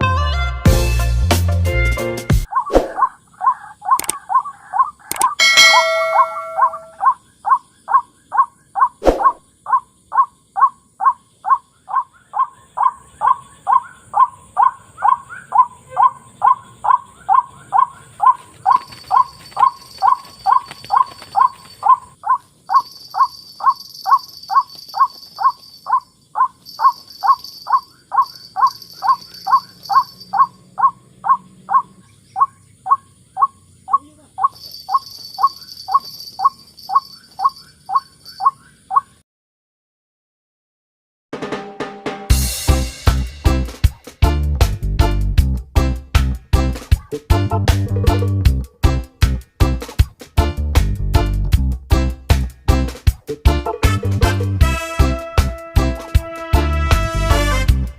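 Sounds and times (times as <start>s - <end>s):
high chirping: 2.5s - 39.2s
bird call with swooping note: 5.2s - 7.2s, 9.0s - 9.4s
high insect hiss: 12.8s - 38.7s.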